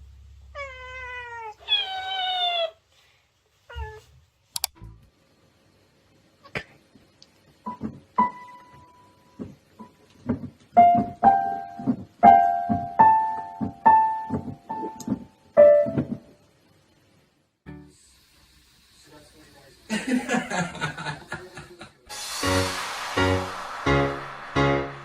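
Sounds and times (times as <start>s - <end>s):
piano notes: 10.8s - 16.3s.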